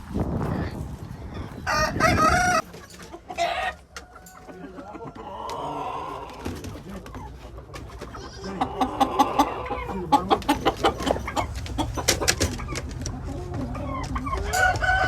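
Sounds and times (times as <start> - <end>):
faint chicken calls: 0.4 - 15.0
rooster crowing: 1.6 - 2.7, 14.5 - 15.0.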